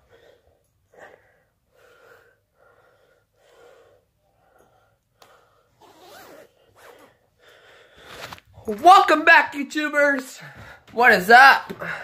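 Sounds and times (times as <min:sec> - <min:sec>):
quick breaths: 0:00.0 - 0:08.7.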